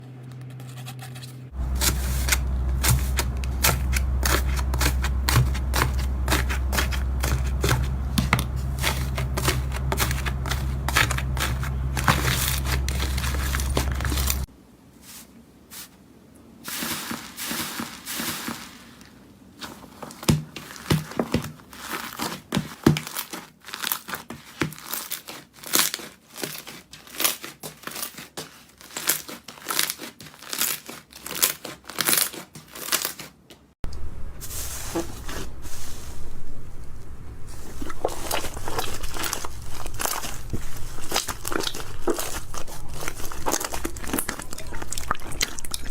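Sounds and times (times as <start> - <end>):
steady low hum: 0.0 - 14.5, 33.8 - 45.9.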